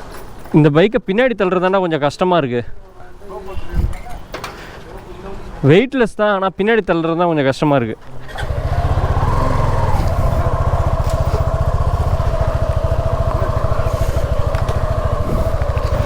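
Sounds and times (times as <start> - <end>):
motorcycle engine idling: 8.0 - 16.0.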